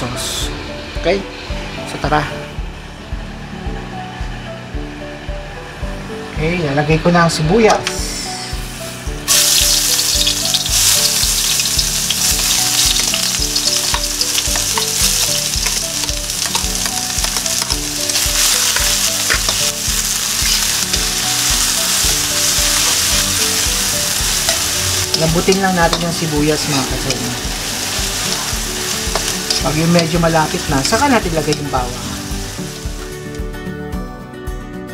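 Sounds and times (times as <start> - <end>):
onions sizzling in hot oil: 8.1 - 33.2
metal spatula scraping wok: 16.4 - 31.6.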